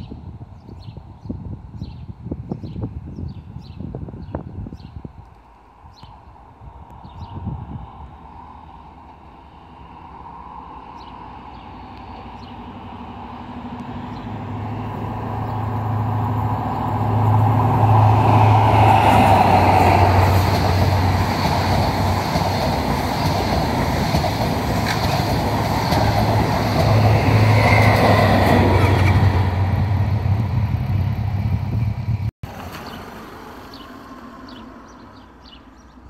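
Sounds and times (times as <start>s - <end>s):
train coaches rushing past: 9.0s - 31.9s
diesel engine drone: 9.2s - 22.2s.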